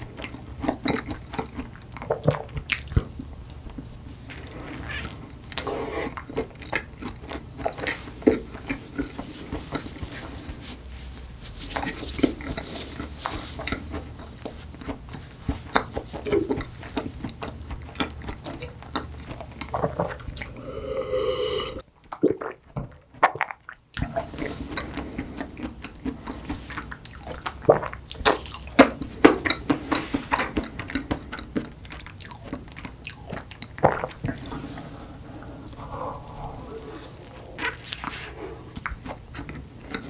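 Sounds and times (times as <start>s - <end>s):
wet sticky chewing: 0.1s - 3.9s, 5.0s - 20.7s, 22.1s - 40.0s
person humming: 20.5s - 21.8s.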